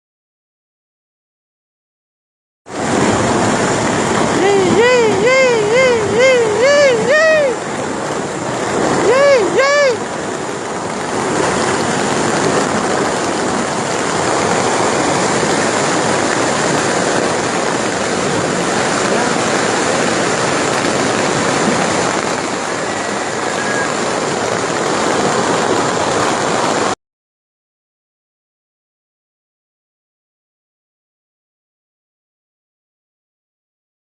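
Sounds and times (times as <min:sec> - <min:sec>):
heavy rain pouring: 0:02.7 - 0:27.0.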